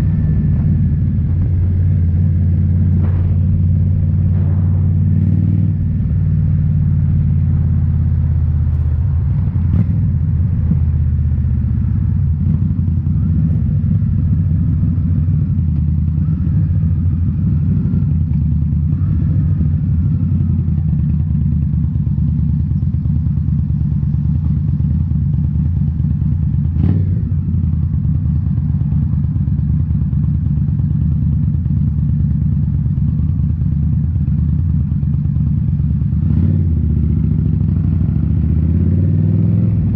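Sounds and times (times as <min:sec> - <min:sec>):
motorcycle engine running: 0:00.0 - 0:39.9
sharp knock: 0:02.9 - 0:07.0.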